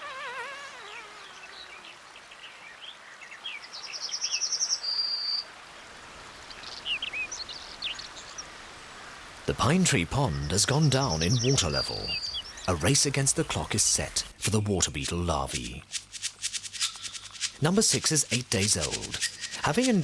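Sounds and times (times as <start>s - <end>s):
birds chirping: 6.4s - 8.6s, 9.5s - 20.0s
bird trill: 11.1s - 13.0s, 16.1s - 17.6s, 18.5s - 19.7s.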